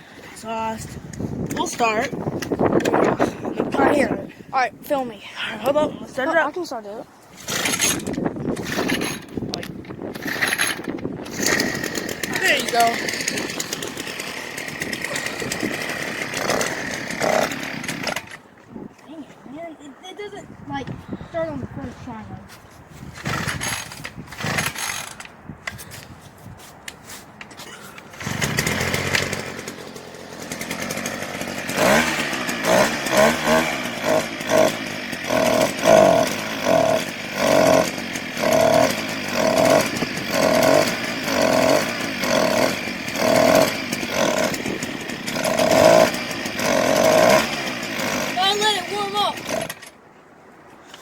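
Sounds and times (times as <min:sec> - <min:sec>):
dirt bike engine revving: 0:07.4 - 0:18.4, 0:23.2 - 0:25.2, 0:28.0 - 0:50.0.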